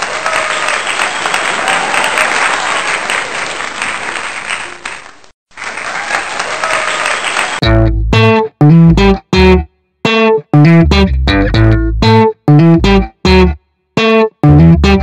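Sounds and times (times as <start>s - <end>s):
crowd applause: 0.0s - 7.6s
loud guitar and bass music: 7.6s - 15.0s.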